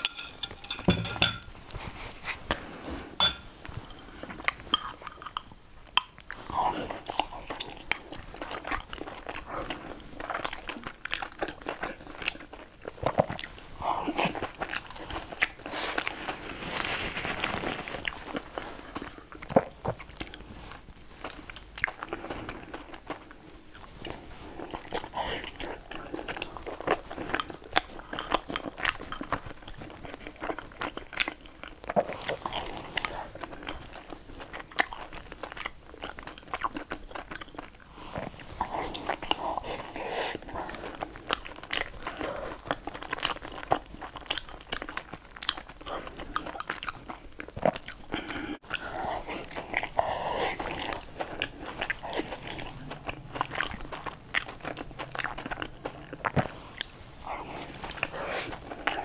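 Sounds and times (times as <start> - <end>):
person biting and chewing food: 30.8 - 59.0.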